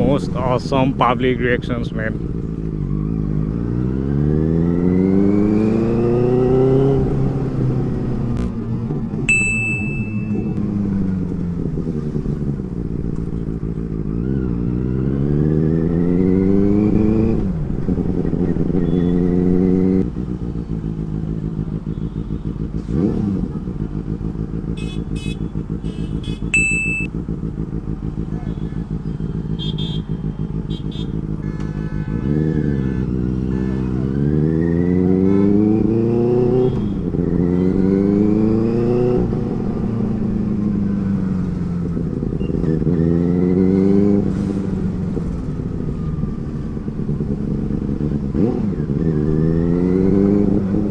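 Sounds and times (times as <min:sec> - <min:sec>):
motorcycle engine accelerating: 0:00.0 - 0:50.9
short high-pitched tones: 0:09.3 - 0:10.6, 0:26.6 - 0:27.1.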